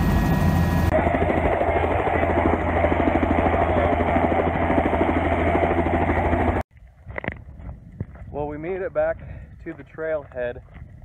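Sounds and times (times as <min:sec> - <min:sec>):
helicopter engine and rotor noise: 0:00.0 - 0:06.6.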